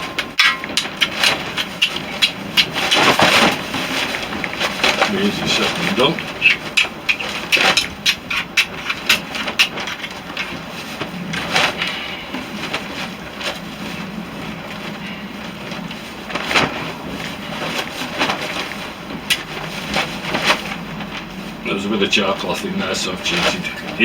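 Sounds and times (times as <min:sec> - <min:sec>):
steel striking flint: 0:00.0 - 0:01.0
wind flapping a tarp: 0:00.0 - 0:24.0.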